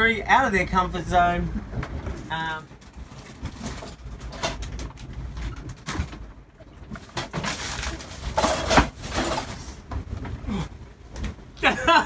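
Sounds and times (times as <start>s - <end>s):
cabin creaking and knocking: 2.8s - 10.5s.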